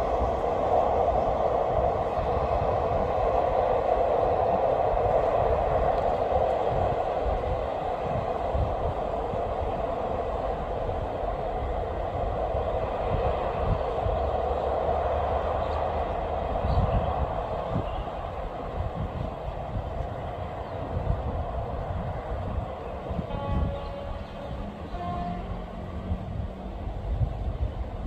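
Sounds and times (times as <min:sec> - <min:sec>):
diesel train rumbling: 0:00.0 - 0:28.0.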